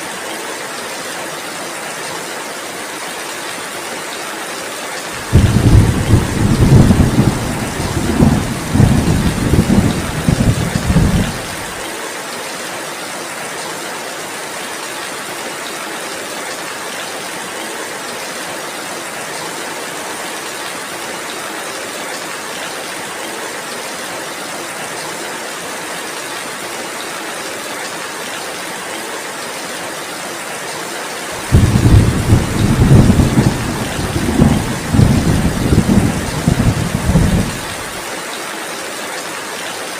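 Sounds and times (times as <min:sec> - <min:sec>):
heavy rain: 0:00.0 - 0:39.9
thunder rumbling: 0:05.2 - 0:11.8, 0:31.4 - 0:38.0.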